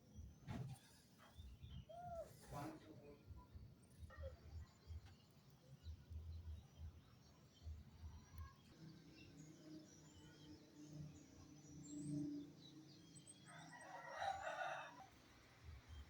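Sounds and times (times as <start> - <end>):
rooster crowing: 13.7 - 15.1.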